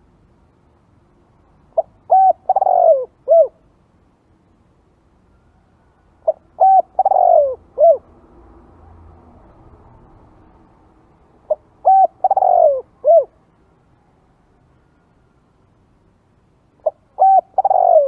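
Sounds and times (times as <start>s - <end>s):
dove cooing: 1.8s - 3.6s, 6.2s - 8.1s, 11.5s - 13.4s, 16.8s - 18.0s.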